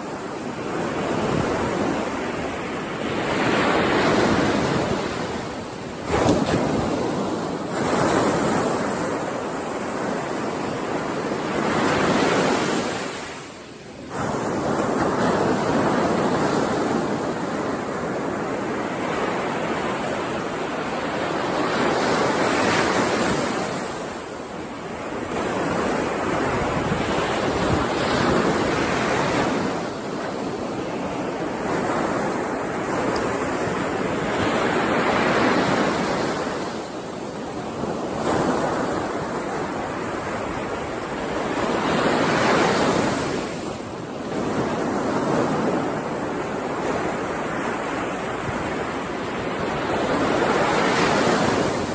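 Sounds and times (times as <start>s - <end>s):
ocean waves breaking on shore: 0.0s - 51.9s.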